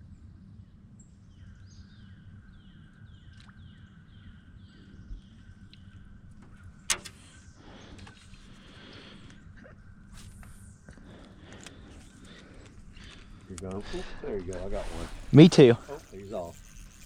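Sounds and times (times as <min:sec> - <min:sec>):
reel sharp click: 0:06.9 - 0:07.4, 0:14.5 - 0:17.0
fishing reel whine: 0:06.9 - 0:17.0.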